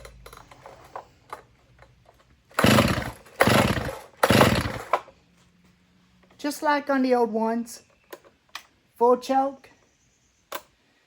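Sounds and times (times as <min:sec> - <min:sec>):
chainsaw starter cord pulls: 0:02.1 - 0:05.1.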